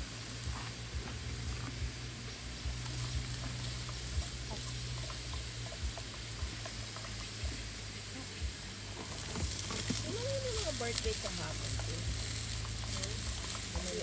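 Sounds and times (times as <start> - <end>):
flowing river: 0.0 - 14.0
rain hissing: 0.0 - 14.0.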